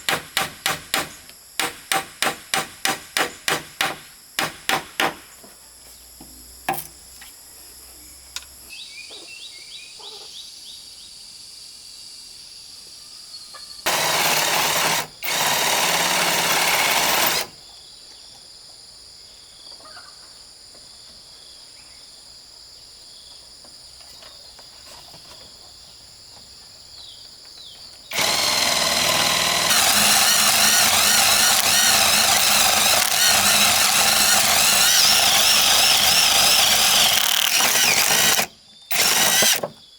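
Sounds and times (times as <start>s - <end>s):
handheld power tool running: 13.9s - 17.5s, 28.1s - 39.7s.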